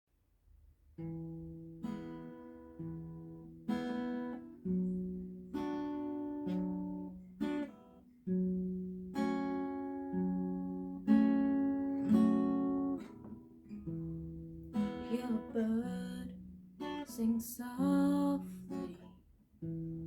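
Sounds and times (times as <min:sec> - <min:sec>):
acoustic guitar chords ringing: 0:01.0 - 0:19.0.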